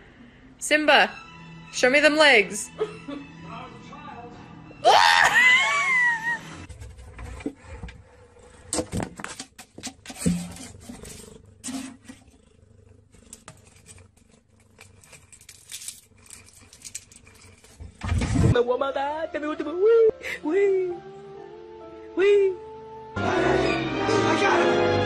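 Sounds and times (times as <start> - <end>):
rustling: 6.7 - 18.6.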